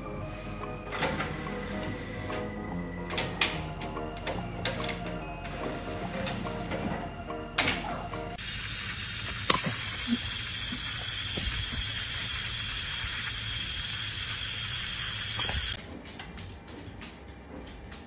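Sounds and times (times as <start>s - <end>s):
hose nozzle spraying water: 8.4s - 15.8s.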